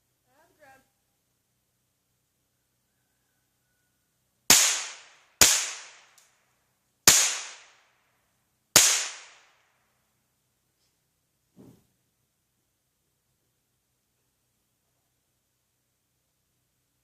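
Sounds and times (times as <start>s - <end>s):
rifle shots: 4.5s - 6.2s, 7.1s - 7.8s, 8.8s - 9.6s.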